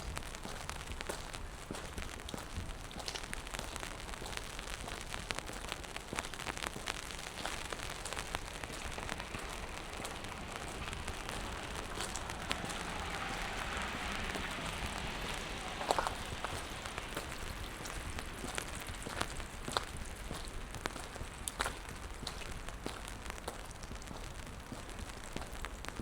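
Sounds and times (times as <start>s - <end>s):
rain on wet pavement: 0.0s - 26.0s
water drips and patters: 0.0s - 26.0s.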